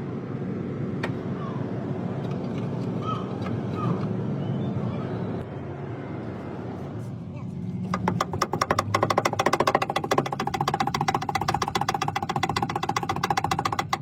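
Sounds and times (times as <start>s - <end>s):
low engine drone: 0.0s - 14.0s.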